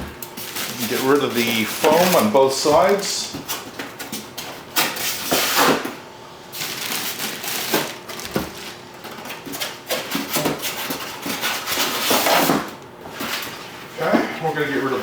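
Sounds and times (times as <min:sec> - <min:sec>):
packaging rustling and crinkling: 0:00.3 - 0:03.1, 0:06.5 - 0:10.4.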